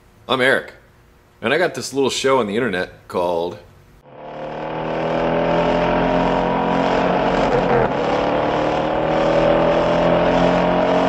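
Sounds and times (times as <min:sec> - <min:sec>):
car engine revving: 0:04.0 - 0:11.0.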